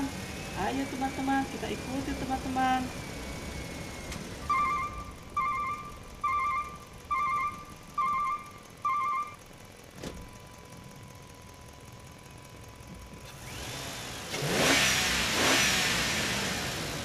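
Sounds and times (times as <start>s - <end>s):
warbling electronic beeps: 4.5s - 9.4s.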